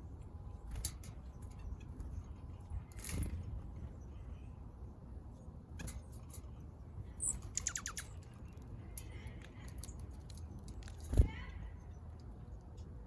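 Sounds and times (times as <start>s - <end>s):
songbird calling: 7.2s - 8.2s.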